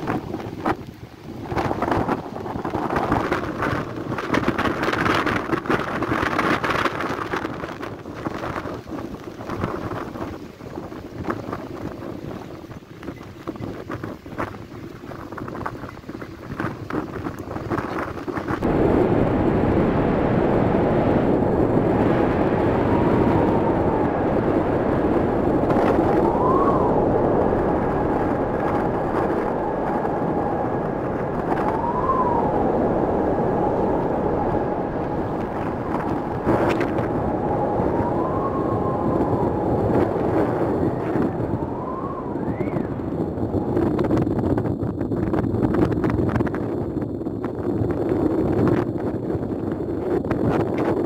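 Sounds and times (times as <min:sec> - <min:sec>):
strong wind on microphone: 0:00.0 - 0:51.0
thin wind whistle: 0:25.9 - 0:44.2.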